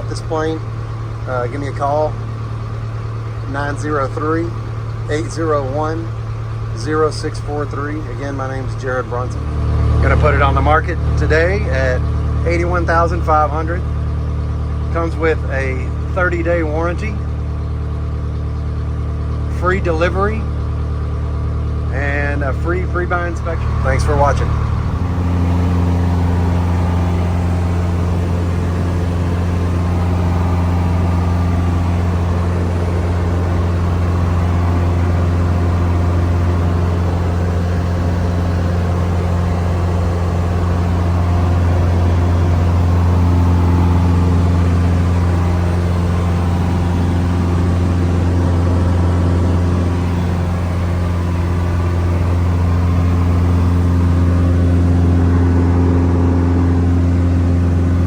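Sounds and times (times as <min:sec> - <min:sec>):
airplane engine droning: 0:00.0 - 0:58.0.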